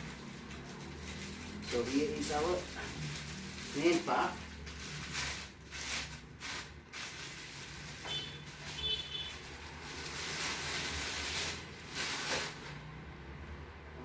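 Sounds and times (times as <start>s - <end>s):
rustling and scraping of wrapping: 0.0s - 12.9s.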